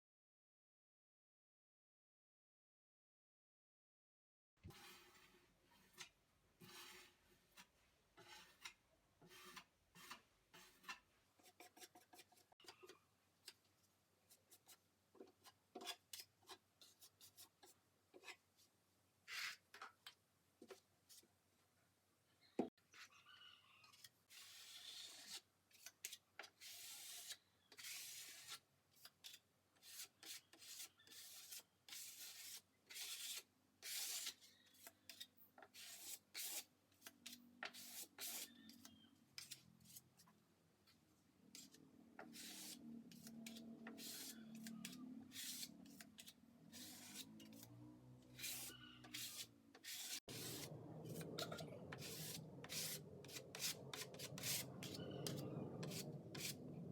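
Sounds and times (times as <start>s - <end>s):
abrasive scraping wood: 41.5s - 56.9s.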